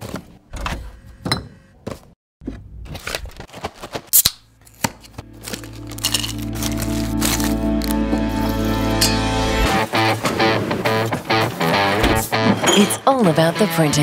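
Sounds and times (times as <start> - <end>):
packaging being cut and handled: 3.0 - 8.9
music with low held chord: 5.2 - 10.4.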